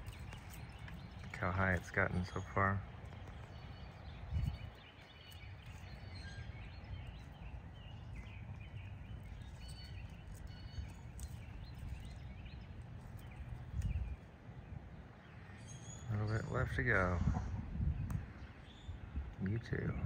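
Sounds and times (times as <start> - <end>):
bird chirps and calls: 0.0 - 20.0
low steady rumble: 16.1 - 20.0.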